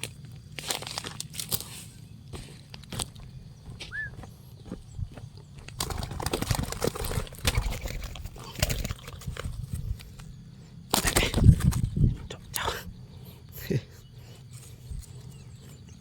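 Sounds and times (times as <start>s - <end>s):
dove cooing: 3.7s - 4.7s, 5.8s - 16.0s.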